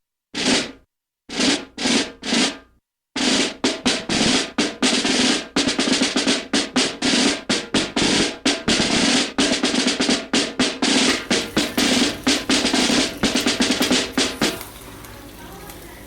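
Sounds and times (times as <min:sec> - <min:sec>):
fast sharp drum hits: 0:03.2 - 0:15.8.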